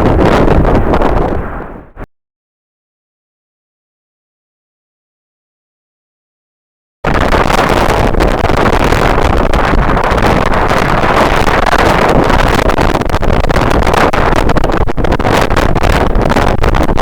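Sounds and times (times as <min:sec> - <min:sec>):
strong wind buffeting microphone: 0:00.0 - 0:02.1, 0:07.0 - 0:17.0.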